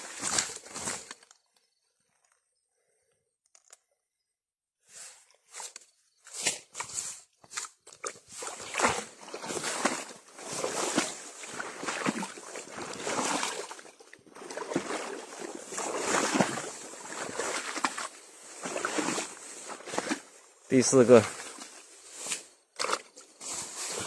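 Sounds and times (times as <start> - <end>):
shallow water sloshing and splashing: 6.8 - 24.0.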